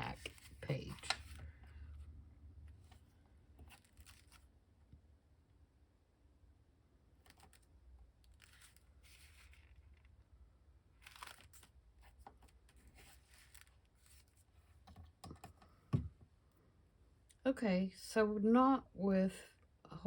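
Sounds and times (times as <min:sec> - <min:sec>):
paper and card rustling: 0:00.0 - 0:01.6, 0:02.9 - 0:04.5, 0:07.2 - 0:10.1, 0:11.0 - 0:14.5.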